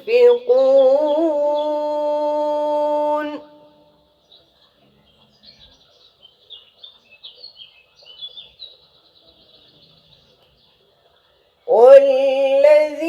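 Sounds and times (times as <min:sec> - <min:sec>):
small birds chirping: 0:00.0 - 0:02.4, 0:03.2 - 0:12.7
person chanting recitation: 0:00.0 - 0:04.1, 0:11.6 - 0:13.0.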